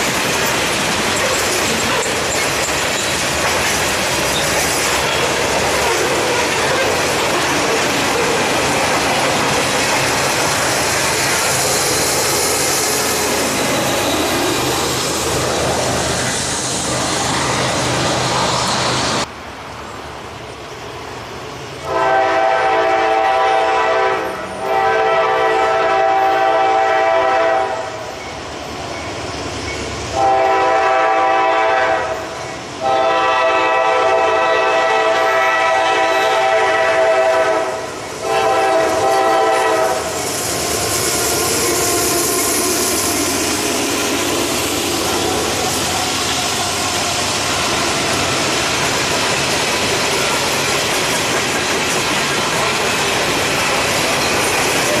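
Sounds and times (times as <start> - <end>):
train rolling past: 0.0 - 55.0
locomotive air horn blasts: 21.8 - 28.0, 30.2 - 40.1.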